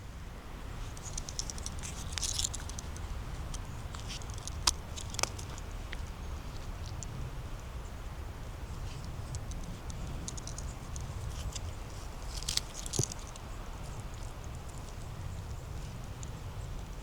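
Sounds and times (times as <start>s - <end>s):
twigs snapping: 0.9s - 6.2s, 9.0s - 13.5s.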